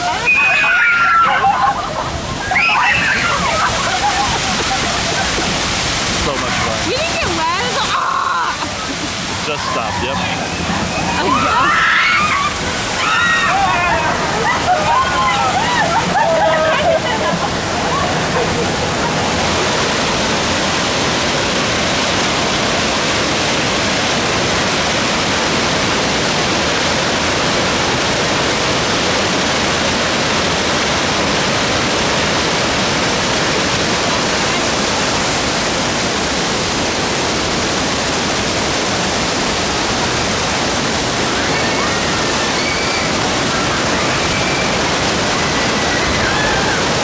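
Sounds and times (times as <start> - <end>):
water rushing down waterfall: 0.0 - 47.0.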